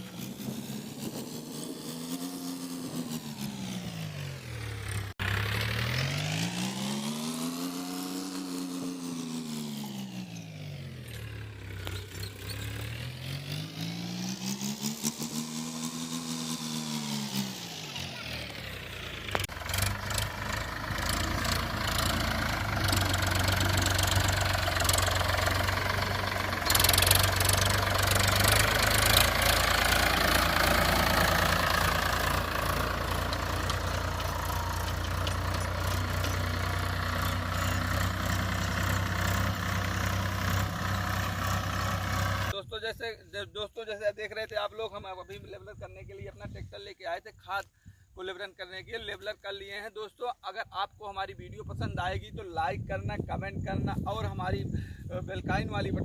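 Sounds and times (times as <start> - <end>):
diesel tractor engine running: 0.0 - 42.6.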